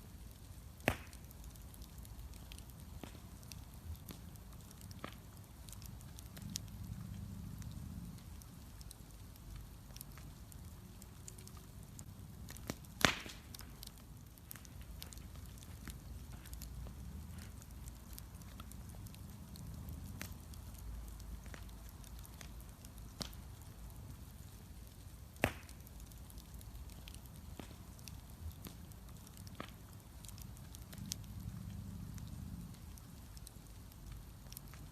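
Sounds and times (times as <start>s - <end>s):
bonfire crackling: 0.0s - 34.9s.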